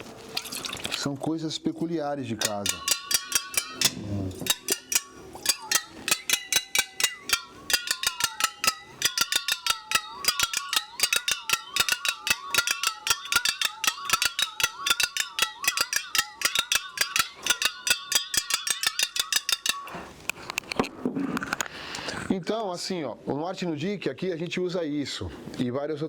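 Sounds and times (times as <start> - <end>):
strikes on ringing metal objects: 2.4 - 20.1.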